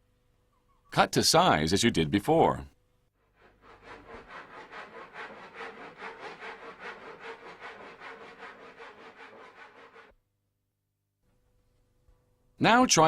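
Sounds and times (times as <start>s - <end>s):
hand saw cutting wood: 3.3s - 10.1s.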